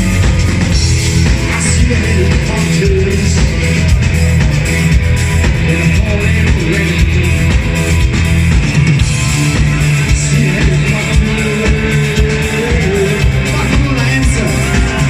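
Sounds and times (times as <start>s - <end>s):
live rock band playing: 0.0s - 15.0s
person singing: 1.3s - 4.3s, 5.4s - 7.8s, 9.2s - 15.0s.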